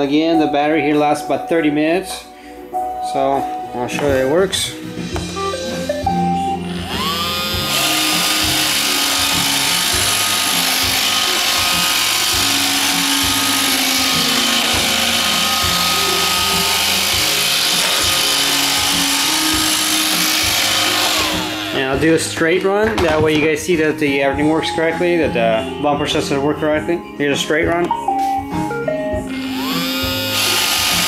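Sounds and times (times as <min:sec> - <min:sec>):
robot vacuum running: 0:06.8 - 0:21.8, 0:29.3 - 0:31.0.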